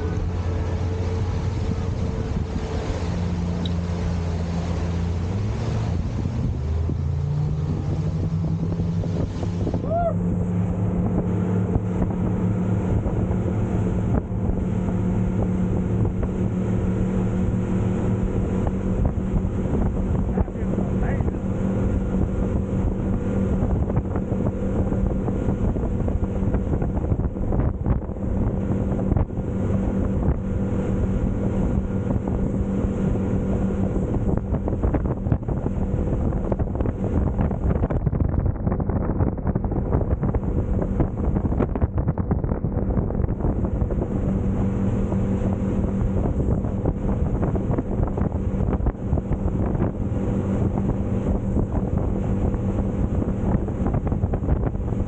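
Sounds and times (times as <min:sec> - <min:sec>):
boat engine drone: 0:00.0 - 0:55.0
water rushing past hull: 0:00.0 - 0:55.0
wind buffeting microphone: 0:00.0 - 0:55.0.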